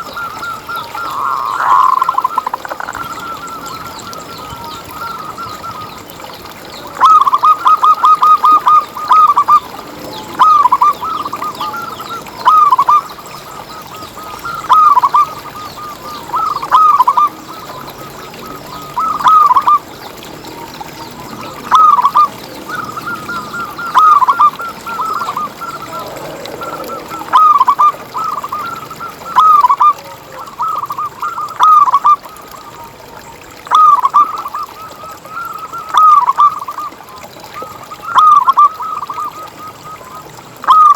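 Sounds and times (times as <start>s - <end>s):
dove cooing: 7.0s - 20.3s, 20.9s - 32.2s.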